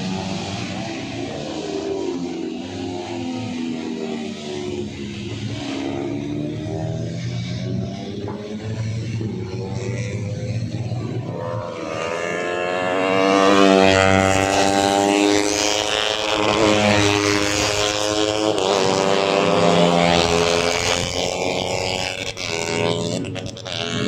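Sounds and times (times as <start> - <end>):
race motorcycle engines: 0.0 - 24.0.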